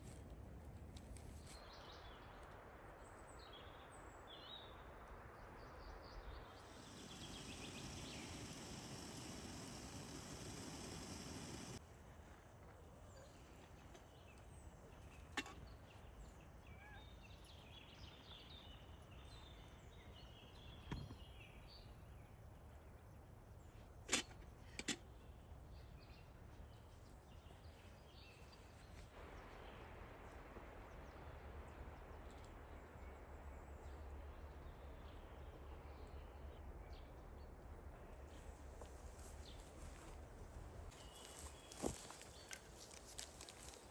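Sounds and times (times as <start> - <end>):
faint bird chirps: 5.4 - 11.8, 13.0 - 29.9, 40.9 - 43.0.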